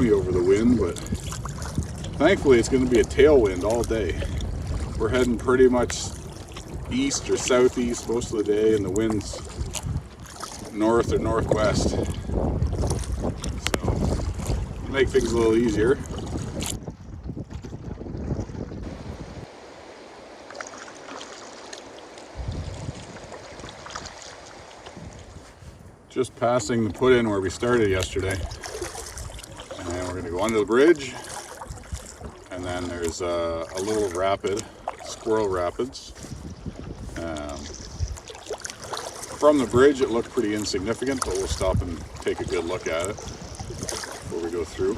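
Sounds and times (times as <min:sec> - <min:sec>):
wind buffeting microphone: 0:00.0 - 0:19.7, 0:22.3 - 0:44.9
water splashing around canoe: 0:00.0 - 0:44.9.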